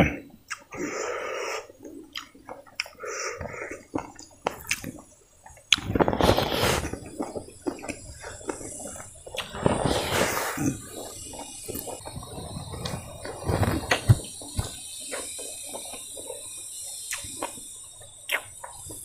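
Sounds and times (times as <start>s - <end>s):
chewing crispy rice: 0.5s - 19.0s.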